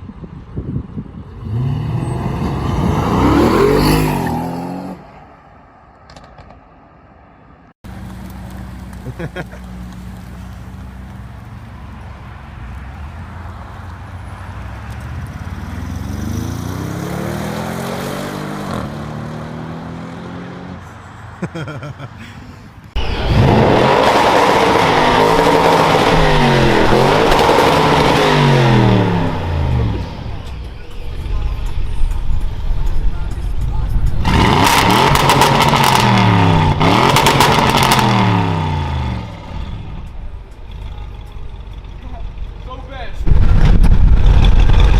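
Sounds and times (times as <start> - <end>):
car engine accelerating: 1.3 - 5.2, 22.9 - 44.9.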